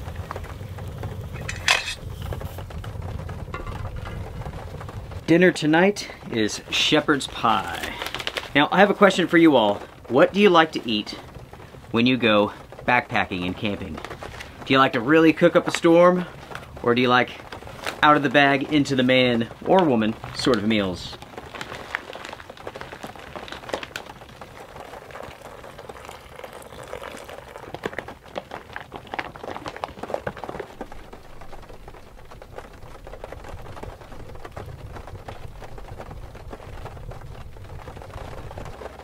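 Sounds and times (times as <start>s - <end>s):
low rumble: 0.0s - 8.0s, 30.6s - 39.0s
hot water pouring into pouch: 0.0s - 39.0s
rain on a wooden shed: 0.0s - 39.0s.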